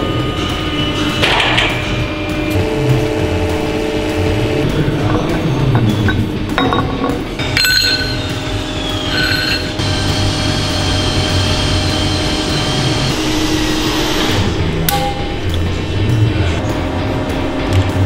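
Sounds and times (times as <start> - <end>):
steady machine hum: 0.0 - 18.0
metal parts clinking: 5.0 - 9.8.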